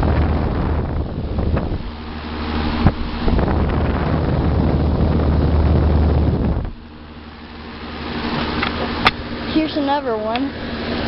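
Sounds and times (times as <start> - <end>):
air rushing over microphone: 0.0 - 7.2
air conditioner fan blowing: 0.0 - 11.0
low compressor hum: 0.0 - 11.0.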